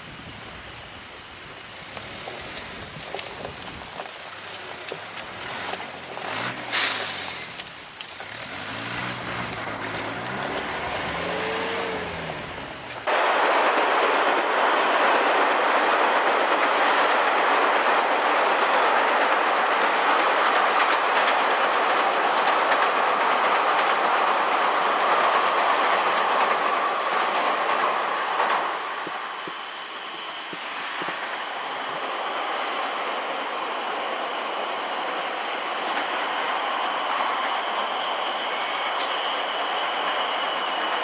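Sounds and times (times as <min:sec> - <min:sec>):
train passing close by: 0:00.0 - 0:41.0
engine gliding in pitch: 0:05.1 - 0:13.1.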